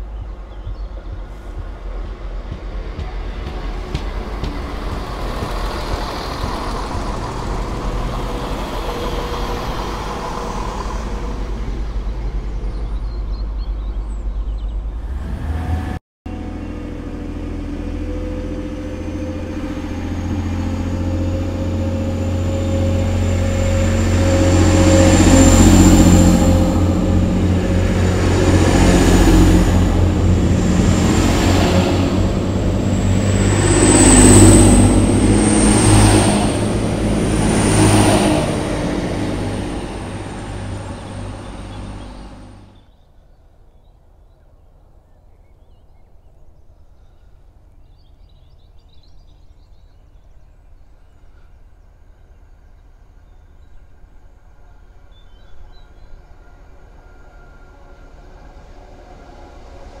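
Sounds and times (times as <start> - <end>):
train wheels rumbling on rail: 0.0 - 42.8
distant train rumble: 0.0 - 43.0, 48.8 - 60.0.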